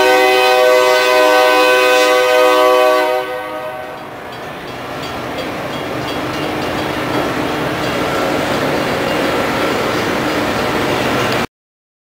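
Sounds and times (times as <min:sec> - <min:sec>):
train horn chord: 0:00.0 - 0:04.2
train rumbling on tracks: 0:00.0 - 0:11.5.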